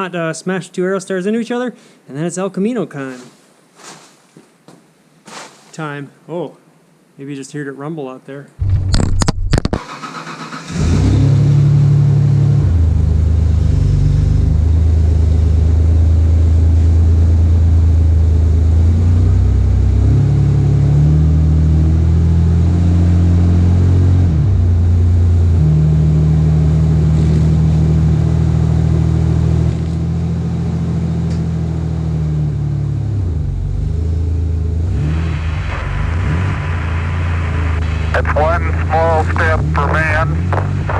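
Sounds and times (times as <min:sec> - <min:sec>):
car engine revving: 0:34.6 - 0:40.9.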